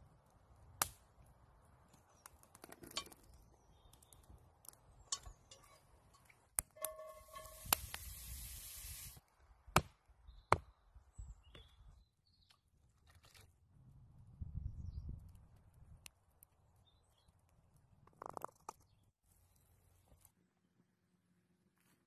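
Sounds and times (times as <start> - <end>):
meat sizzling in a pot: 6.8 - 9.2.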